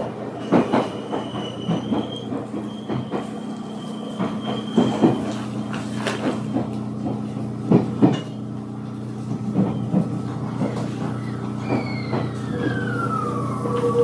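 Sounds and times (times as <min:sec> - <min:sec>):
wheels knocking on rail joints: 0:00.0 - 0:03.4, 0:04.1 - 0:08.4, 0:09.2 - 0:13.0
electric train running hum: 0:00.0 - 0:14.0
high wheel squeal: 0:00.4 - 0:05.5, 0:11.1 - 0:14.0.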